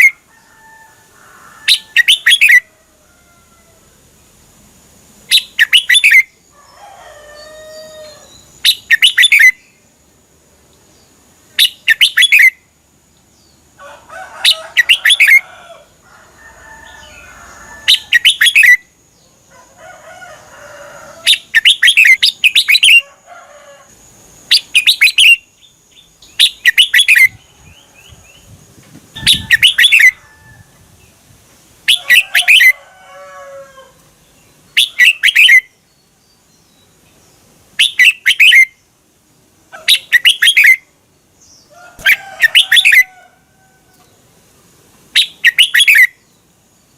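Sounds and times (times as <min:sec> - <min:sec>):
bird singing bright phrases: 0:00.0 - 0:00.2, 0:01.7 - 0:02.6, 0:05.3 - 0:06.4, 0:07.4 - 0:09.9, 0:10.8 - 0:13.7, 0:16.8 - 0:19.4, 0:21.2 - 0:23.0, 0:24.5 - 0:30.2, 0:31.9 - 0:32.8, 0:34.1 - 0:39.0, 0:39.8 - 0:43.2, 0:45.1 - 0:46.9.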